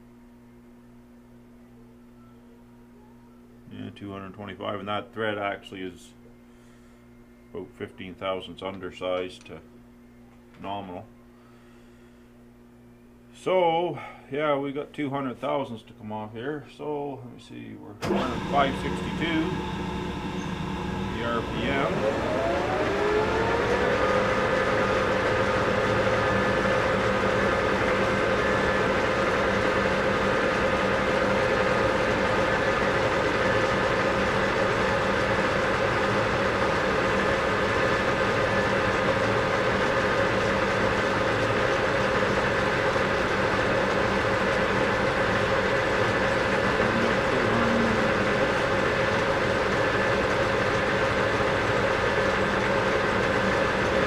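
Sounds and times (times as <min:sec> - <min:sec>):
lathe running with gear whine: 0:18.0 - 0:54.0.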